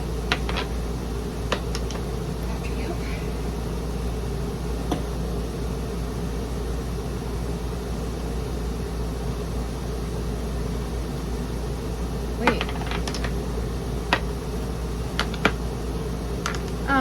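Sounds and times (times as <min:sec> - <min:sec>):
low rumbling drone: 0:01.9 - 0:06.1.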